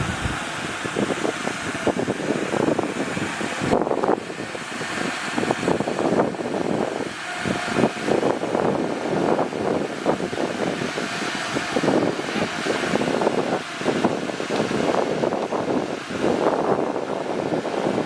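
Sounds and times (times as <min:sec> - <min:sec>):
bulldozer engine running: 0:00.0 - 0:01.6.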